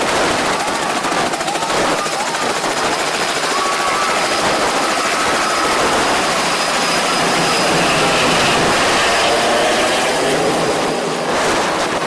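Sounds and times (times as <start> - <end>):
helicopter rotor and turbine noise: 0.0 - 12.0.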